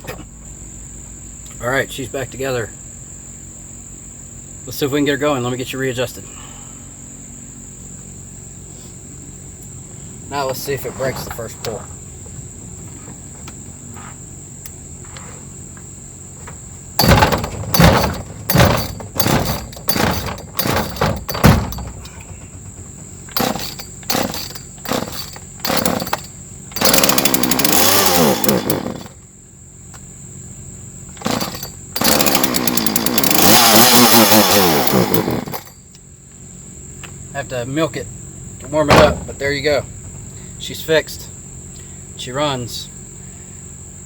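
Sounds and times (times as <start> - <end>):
chainsaw starting and revving: 17.0 - 29.2, 31.1 - 35.8.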